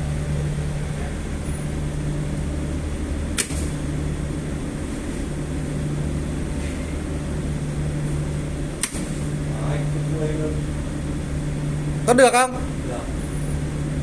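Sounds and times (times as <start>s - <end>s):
low machinery hum: 0.0s - 14.0s
sharp click: 3.4s - 3.7s, 8.8s - 9.2s.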